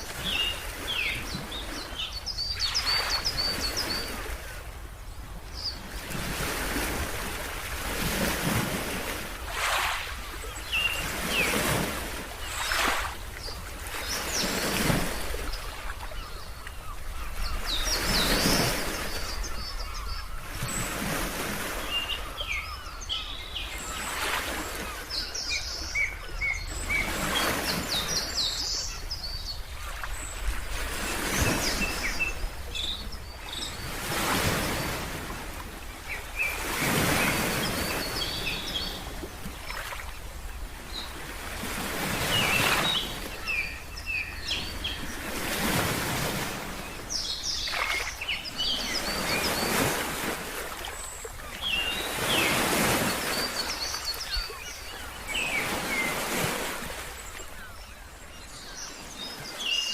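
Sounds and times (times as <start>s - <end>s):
small birds chirping: 46.2s - 56.4s.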